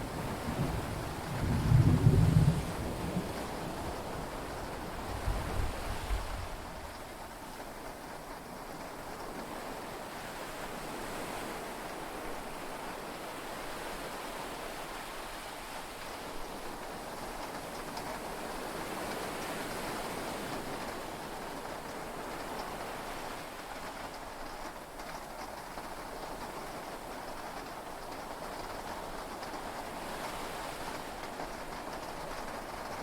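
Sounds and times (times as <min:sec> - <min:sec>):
steady rain: 0:00.0 - 0:33.0
low thunder rumble: 0:00.1 - 0:03.9.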